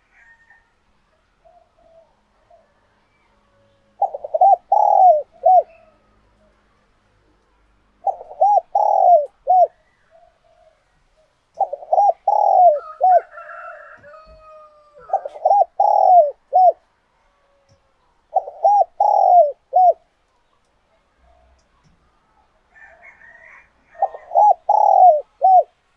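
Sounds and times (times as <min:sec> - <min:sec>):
dove cooing: 0:01.4 - 0:02.8, 0:04.0 - 0:06.0, 0:08.0 - 0:16.8, 0:18.3 - 0:20.0, 0:22.8 - 0:25.8.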